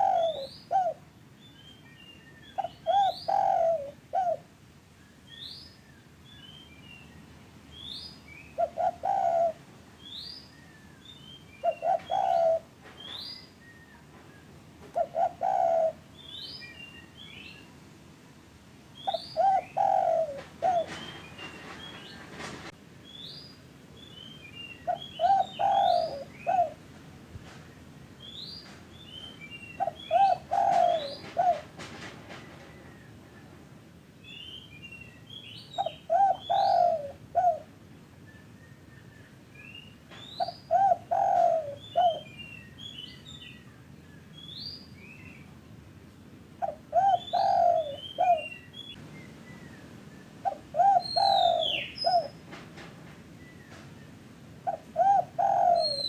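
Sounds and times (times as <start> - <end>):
dove cooing: 0.0 - 1.1, 2.6 - 4.5, 8.5 - 9.6, 11.6 - 13.2, 14.8 - 16.3, 19.0 - 22.4, 24.8 - 26.8, 29.8 - 31.8, 35.8 - 37.7, 40.4 - 42.3, 46.6 - 48.9, 50.4 - 52.4, 54.6 - 56.0.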